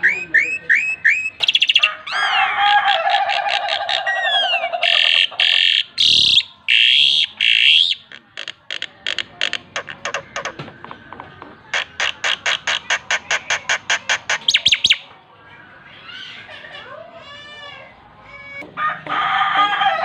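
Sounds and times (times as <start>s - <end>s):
songbird singing: 0.0s - 16.5s
rapid clicking bird notes: 6.7s - 15.0s
harsh rasping bird notes: 11.7s - 15.1s.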